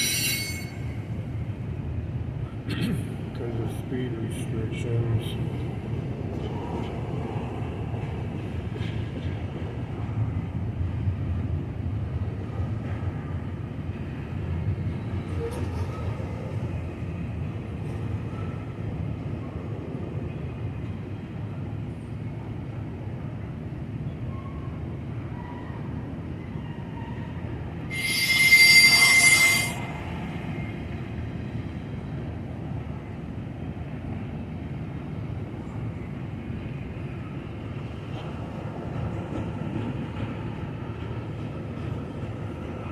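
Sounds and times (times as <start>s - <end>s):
high-pitched wheel squeal: 0.0s - 1.0s, 27.9s - 30.1s
freight train cars rumbling past: 0.0s - 42.9s.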